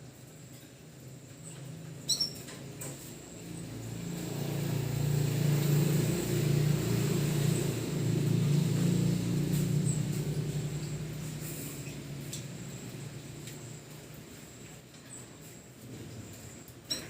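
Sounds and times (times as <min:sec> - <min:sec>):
low engine-like rumble: 0:01.0 - 0:17.0
canary chirp: 0:01.4 - 0:02.6.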